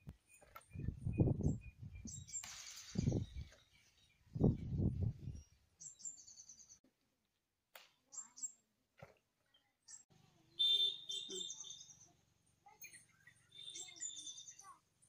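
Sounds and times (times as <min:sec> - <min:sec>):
small birds trilling: 0:09.5 - 0:14.9.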